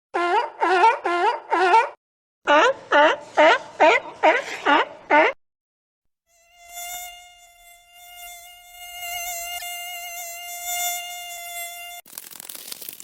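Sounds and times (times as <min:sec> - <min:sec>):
mosquito wing whine: 0:06.3 - 0:12.0
dense crackling scraping noise: 0:12.0 - 0:13.0.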